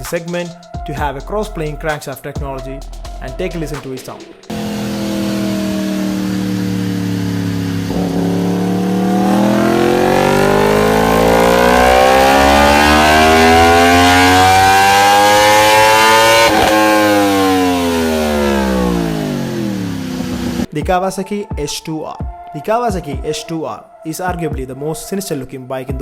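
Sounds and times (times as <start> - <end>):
motorcycle engine accelerating: 4.5 - 20.7.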